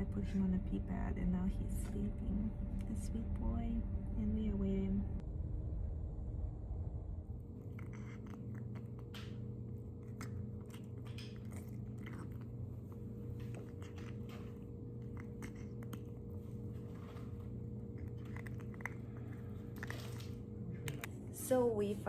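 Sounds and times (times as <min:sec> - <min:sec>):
steady low hum: 0:00.0 - 0:22.0
puppy chewing: 0:07.5 - 0:21.3.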